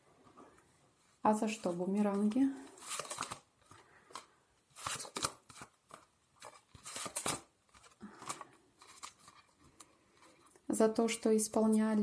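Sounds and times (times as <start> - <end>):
cards being shuffled: 1.5 - 10.4.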